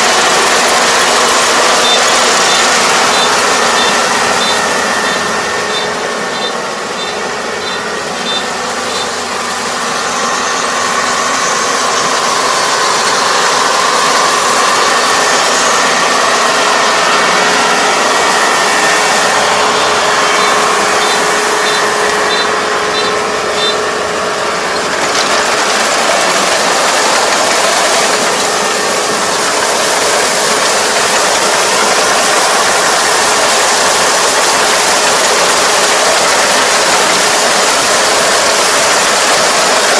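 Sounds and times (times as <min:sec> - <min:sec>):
combine engine and threshing drone: 0:00.0 - 0:39.9
short high beeps: 0:01.8 - 0:09.2, 0:20.2 - 0:23.8.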